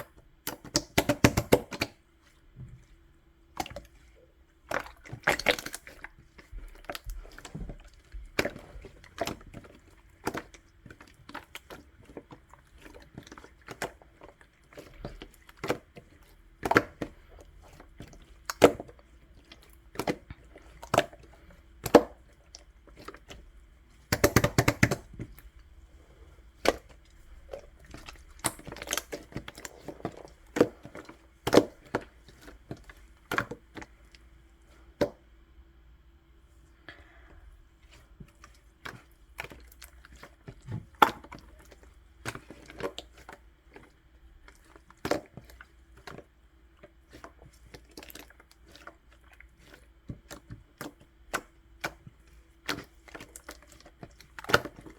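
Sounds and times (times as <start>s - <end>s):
slime squished by hand: 0.0s - 2.6s, 3.5s - 35.2s
faint steady hum: 0.0s - 54.9s
sticky pops and crackles: 24.1s - 25.1s.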